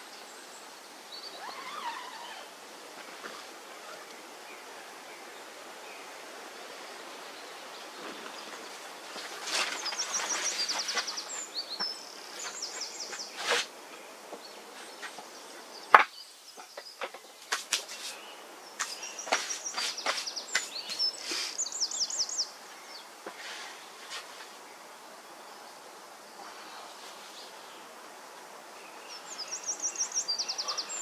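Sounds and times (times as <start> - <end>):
woodland ambience: 0.0 - 31.0.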